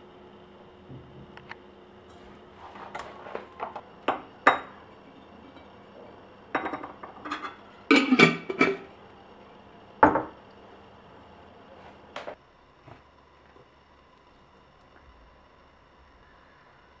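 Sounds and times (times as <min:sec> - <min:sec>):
dishes clattering: 0:02.8 - 0:08.9, 0:10.0 - 0:10.4
dishes clinking and knocking: 0:02.9 - 0:08.9, 0:10.0 - 0:10.4.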